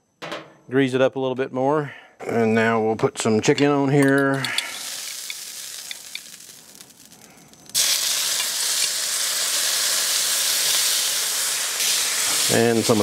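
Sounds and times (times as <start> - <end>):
chicken sizzling on griddle: 4.4 - 13.0
oil hissing: 4.4 - 13.0.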